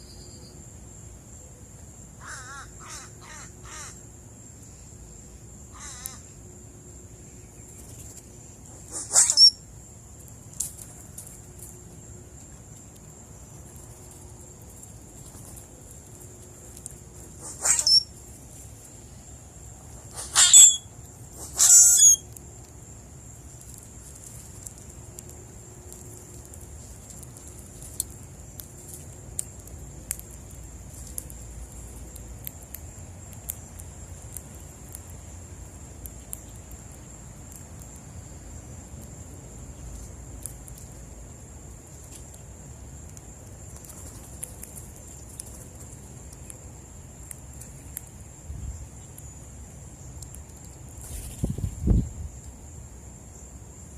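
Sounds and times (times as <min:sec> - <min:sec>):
high-pitched insect trill: 0:00.0 - 0:53.9
harsh bird calls: 0:17.4 - 0:18.1, 0:20.1 - 0:22.2.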